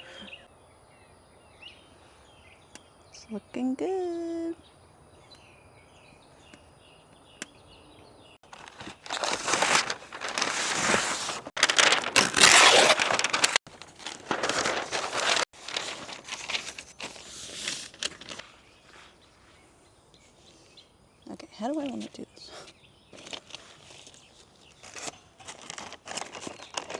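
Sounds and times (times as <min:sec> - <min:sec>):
plastic wrap crinkling and rustling: 0:08.4 - 0:18.5, 0:23.1 - 0:26.9.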